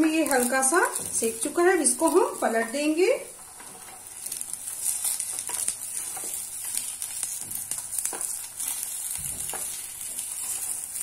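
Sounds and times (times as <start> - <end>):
kababs sizzling in oil: 0.0 - 11.0
wooden spatula scraping pan: 3.4 - 11.0.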